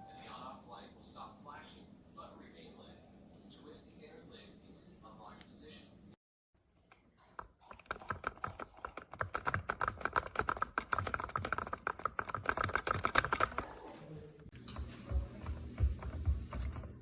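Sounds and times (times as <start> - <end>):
rapid irregular clicking and tapping: 6.8 - 13.8.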